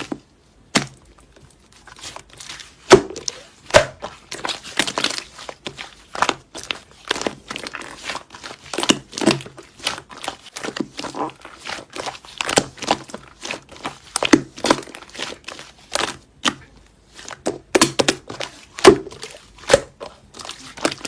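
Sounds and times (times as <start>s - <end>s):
slime crinkling and popping: 0.0s - 21.0s.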